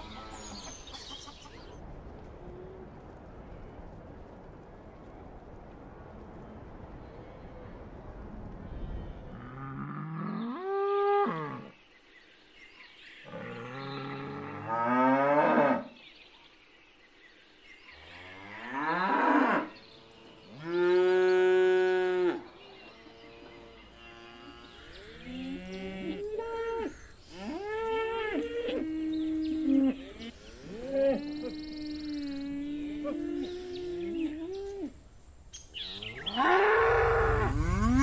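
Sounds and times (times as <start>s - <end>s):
cattle mooing: 36.1s - 38.0s.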